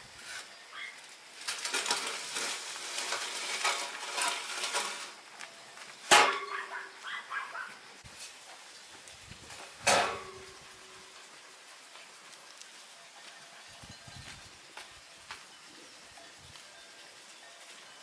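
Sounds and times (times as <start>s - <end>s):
iron bars clattering: 1.4s - 5.2s, 6.0s - 7.0s, 9.8s - 10.5s
sharp metallic clang: 6.1s - 6.8s.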